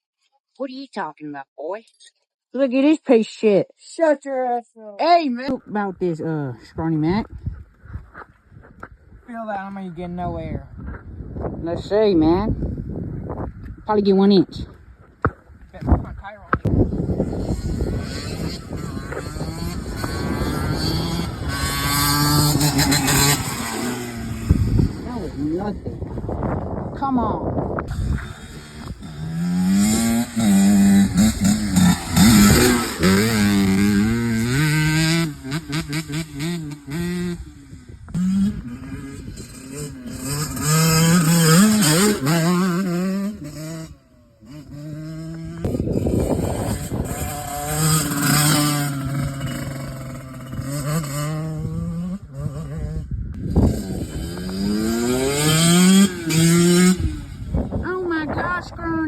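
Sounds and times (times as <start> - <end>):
dirt bike engine revving: 16.7 - 26.9, 27.8 - 58.3.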